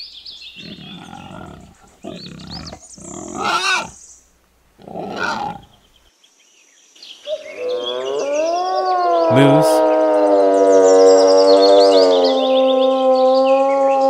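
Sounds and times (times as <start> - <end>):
wild boar grunting: 0.6 - 4.1, 4.8 - 6.0.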